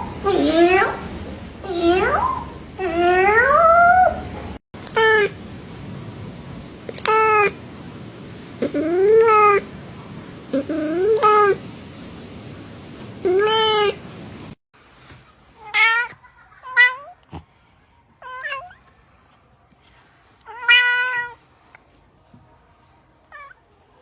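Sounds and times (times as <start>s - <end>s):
cat meowing: 13.3s - 14.0s, 15.6s - 17.2s, 18.2s - 18.8s, 20.5s - 21.4s.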